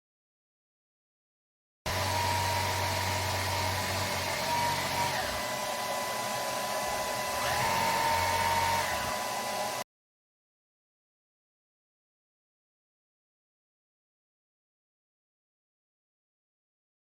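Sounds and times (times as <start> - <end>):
vacuum cleaner running: 1.9 - 9.8.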